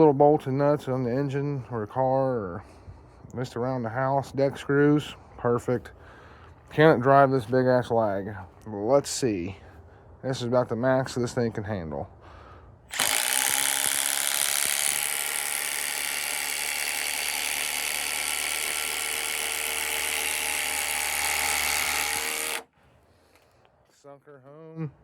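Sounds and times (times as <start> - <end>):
impact driver hammering: 12.9 - 22.7.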